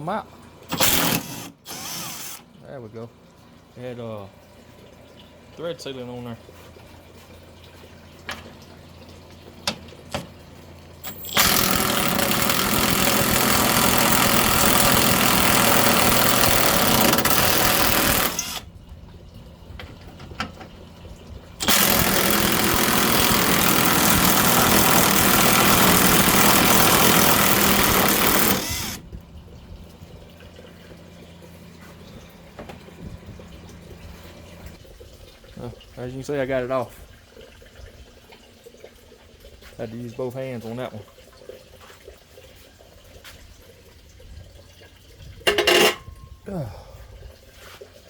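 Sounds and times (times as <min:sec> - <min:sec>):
impact ratchet running: 0:00.7 - 0:02.4, 0:11.0 - 0:18.6, 0:21.6 - 0:29.0.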